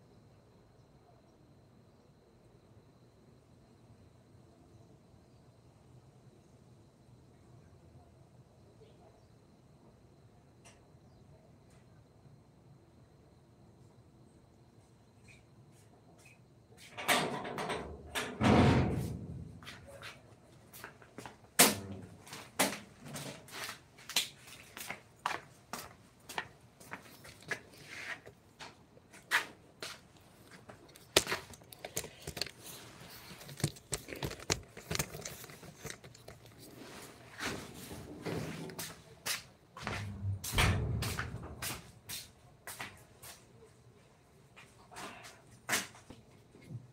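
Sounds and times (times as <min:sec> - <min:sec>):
scraping and rustling: 0:30.3 - 0:39.0.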